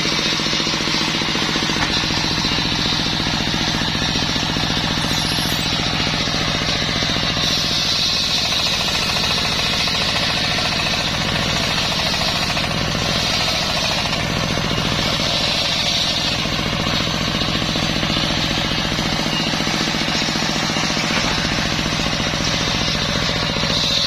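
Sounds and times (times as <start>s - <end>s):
circular saw cutting wood: 0.0s - 24.0s
rapidly pulsing engine: 0.0s - 24.0s
saw hiss: 1.8s - 9.1s.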